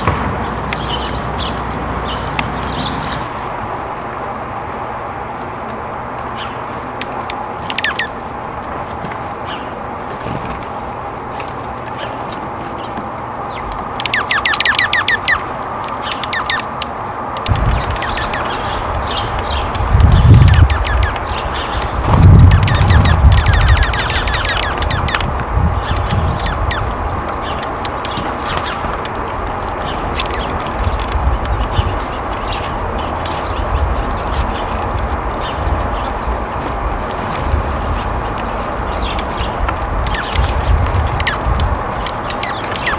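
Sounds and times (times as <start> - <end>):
low rumble: 0.0 - 4.4, 17.4 - 27.6
wild birds chirping: 0.0 - 42.9.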